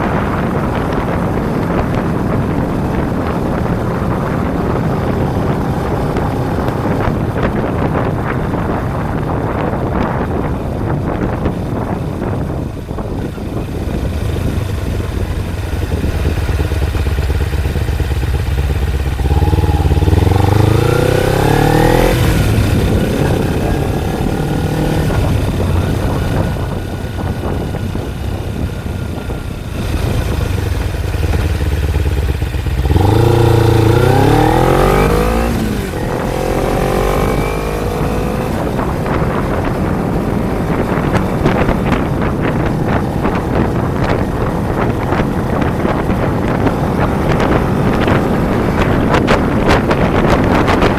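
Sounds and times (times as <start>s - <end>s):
motorcycle engine accelerating: 0.0s - 50.9s
wind buffeting microphone: 0.0s - 50.9s.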